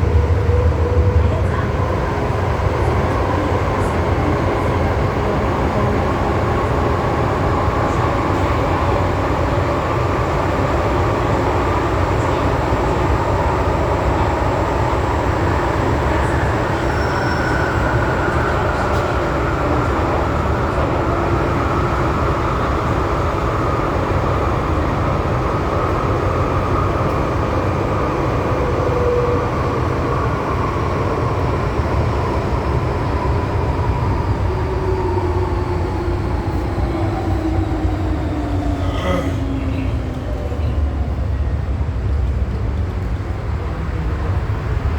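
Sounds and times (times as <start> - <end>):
train wheels rumbling on rail: 0.0 - 44.9.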